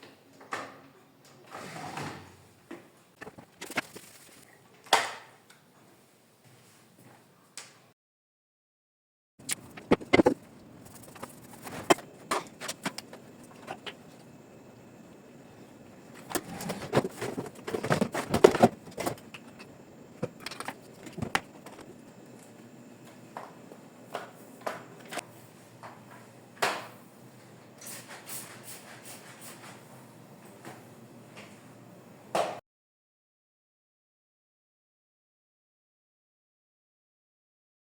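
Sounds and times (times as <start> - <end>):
household objects clattering: 16.2 - 21.8.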